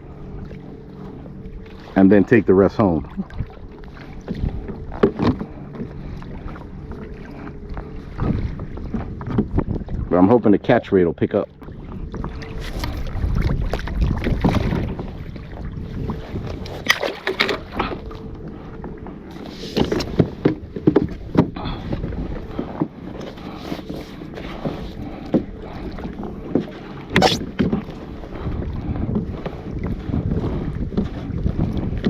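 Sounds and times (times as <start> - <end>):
water lapping against kayak: 0.0 - 32.0
wind rumbling on microphone: 0.0 - 32.0
sharp splashes and knocks: 16.8 - 17.7.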